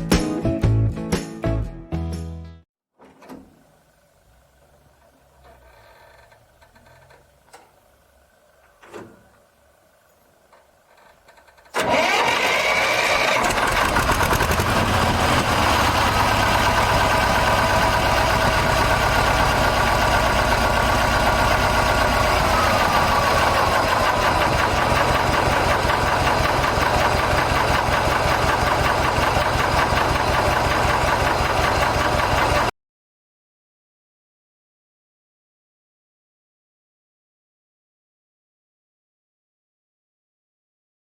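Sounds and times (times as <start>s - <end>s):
diesel engine idling: 3.6s - 32.7s.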